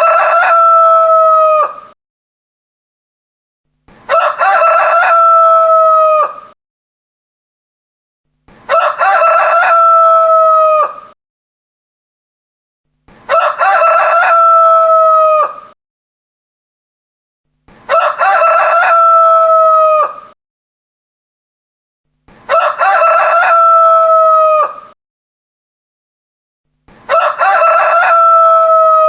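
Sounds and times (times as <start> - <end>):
rooster crowing: 0.0 - 1.9, 4.1 - 6.6, 8.7 - 11.2, 13.3 - 15.8, 17.9 - 20.4, 22.5 - 25.0, 27.1 - 29.0.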